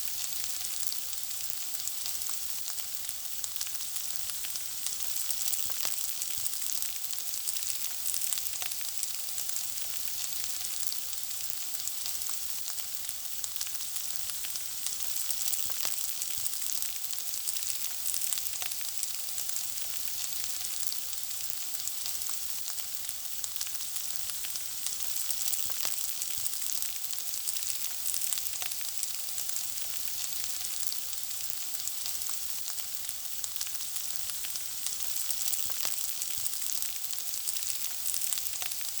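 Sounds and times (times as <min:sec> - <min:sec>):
food sizzling: 0:00.0 - 0:39.0.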